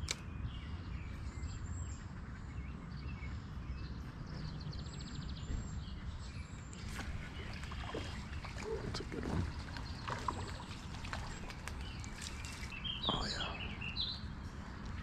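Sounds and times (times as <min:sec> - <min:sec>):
thin bird calls: 0:00.0 - 0:02.5, 0:03.5 - 0:15.0
steady low rumble: 0:00.0 - 0:15.0.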